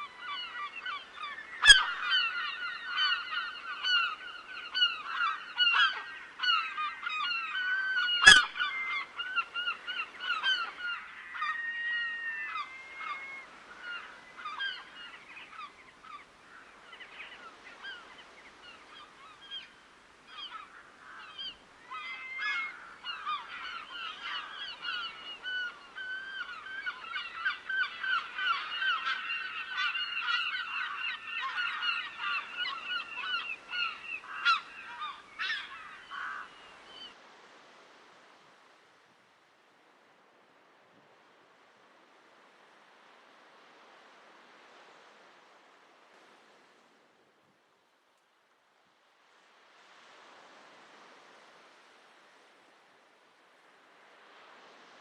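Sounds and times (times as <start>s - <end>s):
waterbirds honking: 0.3s - 15.8s, 20.3s - 37.1s.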